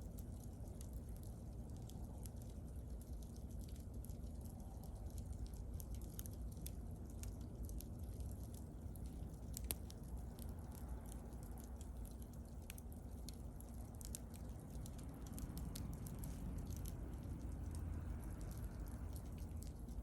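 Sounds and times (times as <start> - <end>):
bonfire crackling and popping: 0.0 - 20.0
rumble of flames: 0.0 - 20.0.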